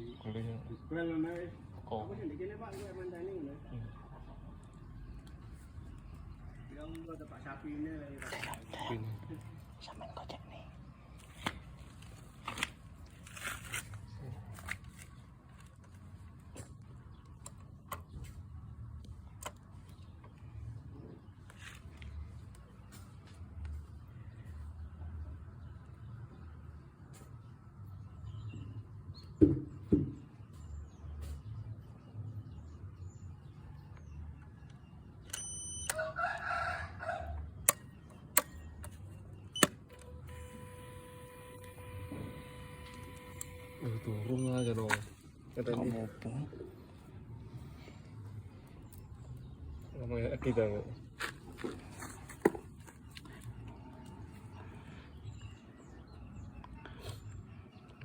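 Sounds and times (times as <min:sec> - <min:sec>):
crackling rustles: 0:11.2 - 0:16.5
rooster crowing: 0:35.9 - 0:37.5
sharp clicks: 0:37.6 - 0:45.0
steady low hum: 0:39.4 - 0:49.3.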